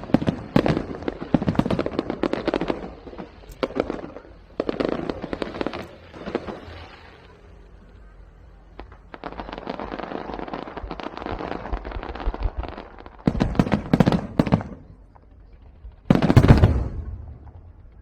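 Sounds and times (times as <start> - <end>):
loud firework blast: 0.0 - 15.2, 16.0 - 18.0
firecrackers crackling: 0.0 - 18.0.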